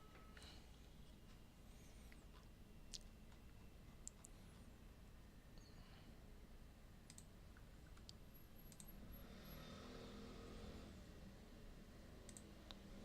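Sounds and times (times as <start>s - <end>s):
faint low hum: 0.0s - 13.0s
computer mouse clicks: 4.0s - 4.4s, 7.1s - 9.0s, 12.2s - 12.9s.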